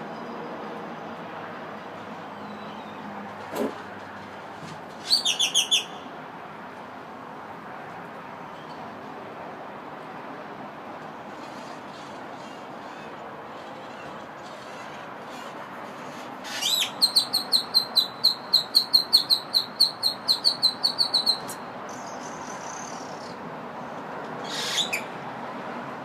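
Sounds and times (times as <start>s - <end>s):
bird singing: 5.0s - 6.1s, 16.5s - 23.4s.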